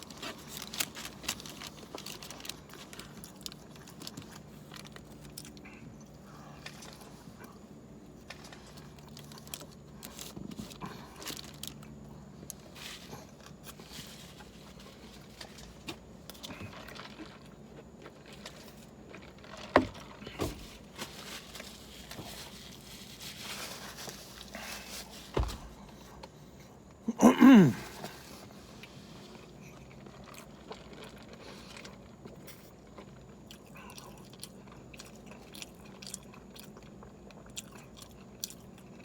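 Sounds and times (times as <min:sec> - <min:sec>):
person chewing and swallowing: 0:29.4 - 0:39.0.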